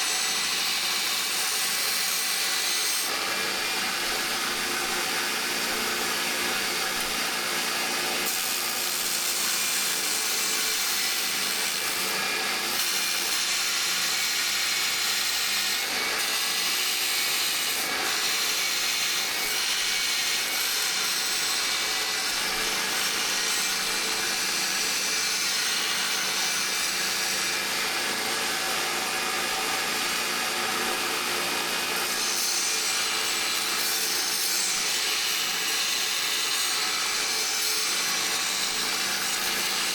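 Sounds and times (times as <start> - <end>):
power tool grinding steel: 0.0 - 39.9.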